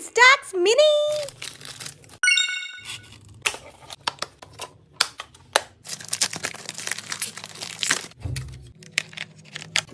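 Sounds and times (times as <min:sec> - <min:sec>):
gift wrap crackling and tearing: 0:01.1 - 0:02.2, 0:05.8 - 0:08.2, 0:08.8 - 0:09.9.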